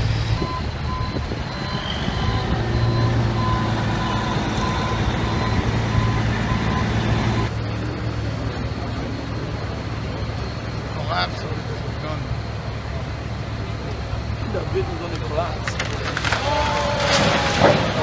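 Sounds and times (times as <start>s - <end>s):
heavy vehicle engine running: 0.0s - 18.0s
reversing alarm beeping: 0.3s - 7.6s.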